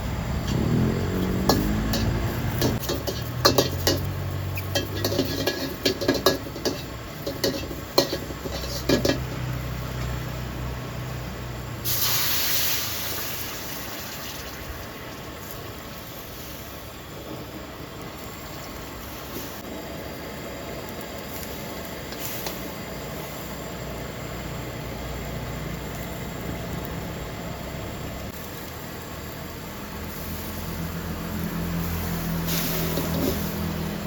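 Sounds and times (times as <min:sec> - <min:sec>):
low motor hum: 0:00.0 - 0:05.0
hissing sizzle: 0:00.0 - 0:34.0
metal utensils clanking on cookware: 0:00.4 - 0:09.7.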